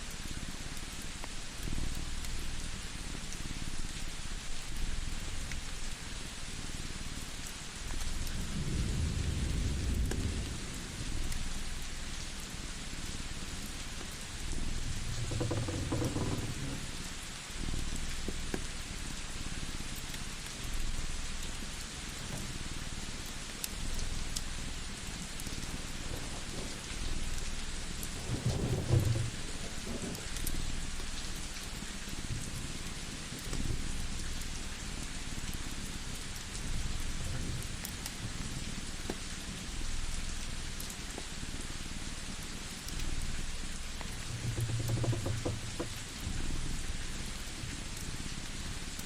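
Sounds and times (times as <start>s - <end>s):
steady rain: 0.0s - 49.0s
low rumble of thunder: 7.9s - 18.5s, 20.6s - 39.0s
fire crackling: 10.6s - 32.9s
low purring rumble: 13.6s - 18.4s, 22.2s - 31.5s, 43.2s - 47.6s
fireplace crackling: 22.5s - 31.4s.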